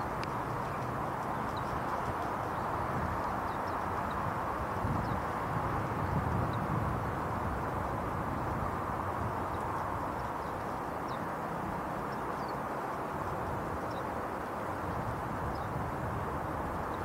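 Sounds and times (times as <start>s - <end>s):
songbird chirps: 0.0s - 6.7s, 9.2s - 15.8s.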